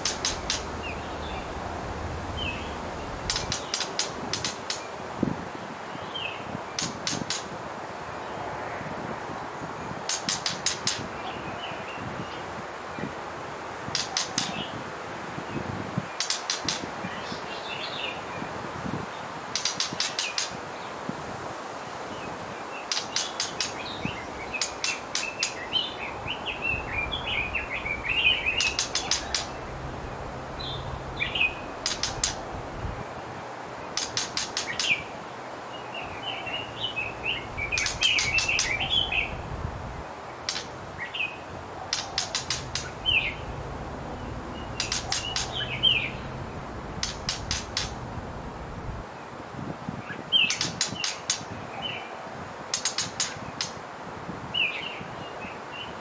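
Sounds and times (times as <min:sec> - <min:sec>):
bird clicking notes: 0:00.0 - 0:01.0, 0:03.2 - 0:04.9, 0:06.8 - 0:07.5, 0:10.1 - 0:11.1, 0:13.9 - 0:14.6, 0:16.2 - 0:16.9, 0:19.6 - 0:20.6, 0:22.9 - 0:23.8, 0:24.6 - 0:25.6, 0:28.0 - 0:29.8, 0:31.4 - 0:32.5, 0:33.9 - 0:35.0, 0:37.6 - 0:38.8, 0:40.4 - 0:40.8, 0:41.9 - 0:43.4, 0:44.6 - 0:46.1, 0:47.0 - 0:48.0, 0:52.7 - 0:53.8
high twittering bird chirps: 0:22.9 - 0:29.8, 0:30.6 - 0:32.5, 0:36.0 - 0:39.5, 0:40.5 - 0:48.0.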